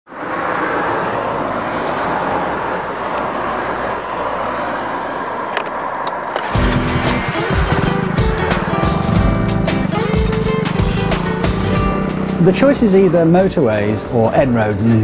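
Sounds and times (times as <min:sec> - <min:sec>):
road and vehicle noise: 0:00.0 - 0:15.0
music: 0:06.4 - 0:15.0.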